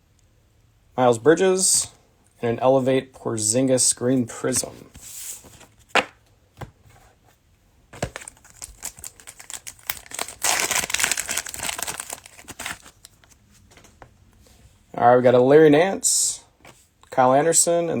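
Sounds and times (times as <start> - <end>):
plastic crackling: 8.0 - 13.4
plastic wrapper tearing: 8.0 - 13.4.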